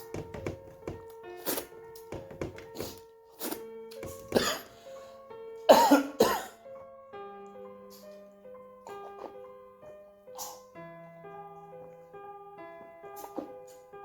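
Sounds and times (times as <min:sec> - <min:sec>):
slow background music: 0:00.0 - 0:14.0
person coughing: 0:04.2 - 0:04.7, 0:05.7 - 0:06.6.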